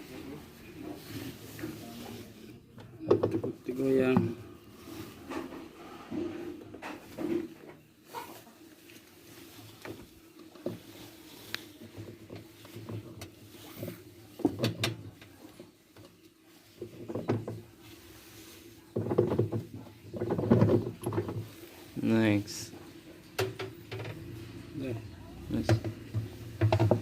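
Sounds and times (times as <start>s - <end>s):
plastic knocking and scraping: 2.8s - 4.4s, 11.8s - 16.2s, 16.8s - 17.8s, 18.9s - 21.7s, 25.6s - 27.0s
plastic rattling: 19.0s - 21.5s.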